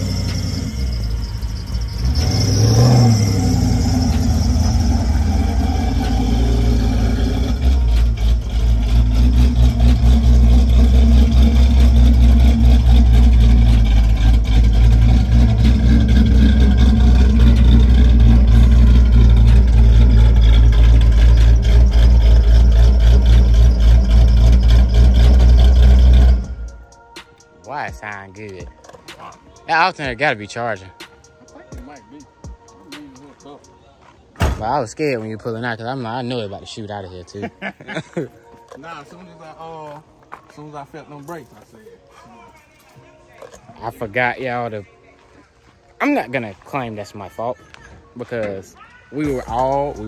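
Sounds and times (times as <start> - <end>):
car engine rumbling: 0.0 - 27.0, 49.2 - 50.0.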